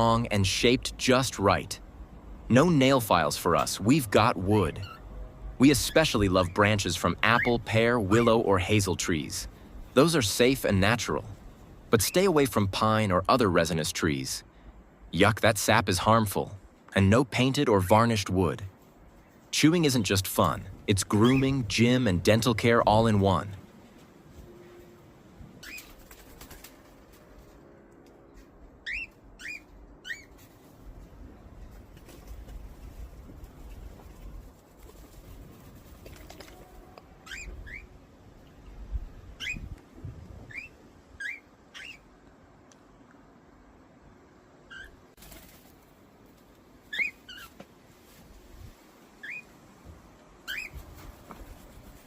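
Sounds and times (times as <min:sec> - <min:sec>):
bird chirping: 0:37.2 - 0:38.0, 0:40.5 - 0:42.1, 0:46.9 - 0:47.6, 0:50.4 - 0:50.8.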